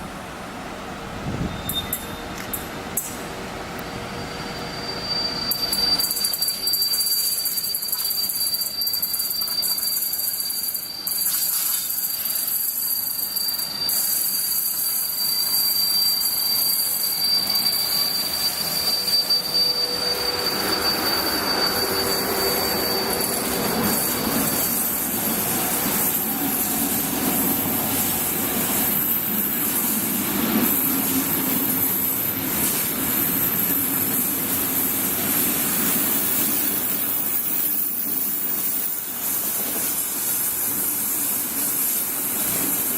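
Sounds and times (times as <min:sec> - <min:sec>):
train rumbling: 0:00.0 - 0:42.9
high steady whine: 0:14.8 - 0:29.5.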